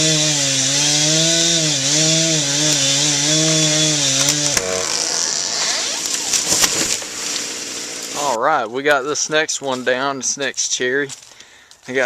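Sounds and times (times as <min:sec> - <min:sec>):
chainsaw cutting wood: 0:00.0 - 0:08.4.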